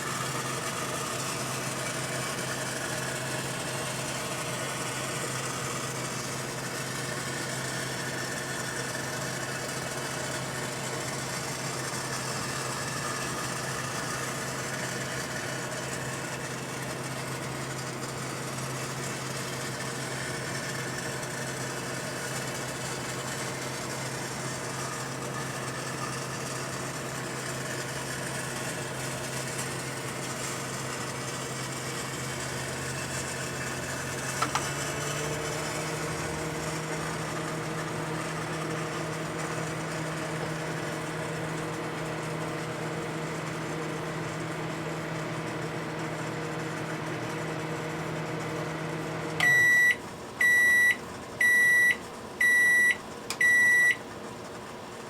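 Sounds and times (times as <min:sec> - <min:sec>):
microwave oven humming: 0:00.0 - 0:55.0
microwave click: 0:34.2 - 0:35.2, 0:49.4 - 0:54.0.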